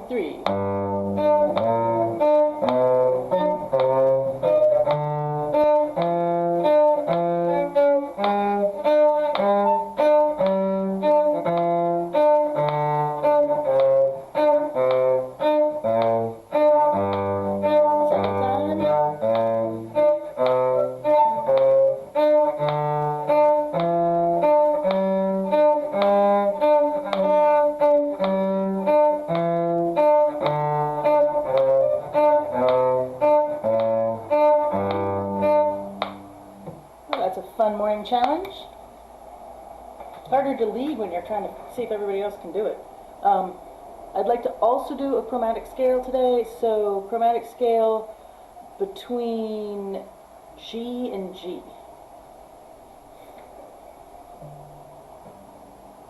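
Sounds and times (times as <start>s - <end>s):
bowed strings playing a scale: 0.0s - 38.4s, 54.4s - 55.8s
metronome clicking: 0.4s - 37.4s.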